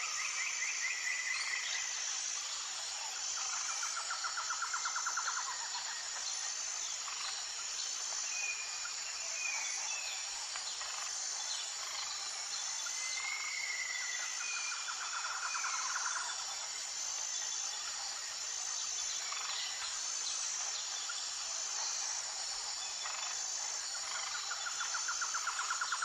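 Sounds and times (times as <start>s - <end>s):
insects chorus: 0.0s - 26.0s.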